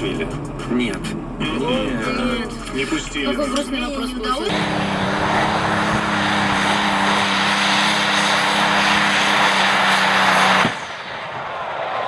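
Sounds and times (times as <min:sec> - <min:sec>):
engine drone: 0:04.4 - 0:12.0
wide rushing noise: 0:04.5 - 0:12.0.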